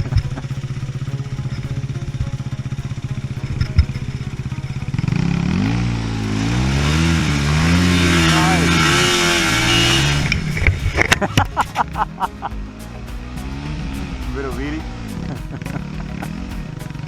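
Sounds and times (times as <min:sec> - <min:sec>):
dirt bike engine idling: 0:00.0 - 0:17.0
dirt bike engine revving: 0:04.1 - 0:12.5.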